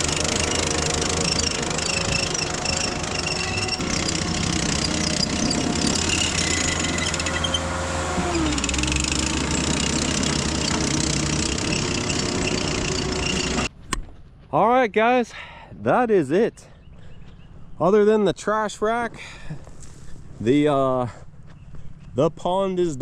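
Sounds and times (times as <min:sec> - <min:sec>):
diesel engine running: 0:00.0 - 0:13.7.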